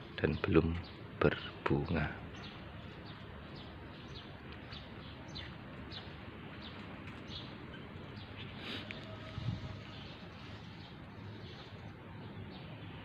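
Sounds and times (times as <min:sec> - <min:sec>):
small birds chirping: 0:00.0 - 0:13.0
steady background hiss: 0:00.0 - 0:13.0.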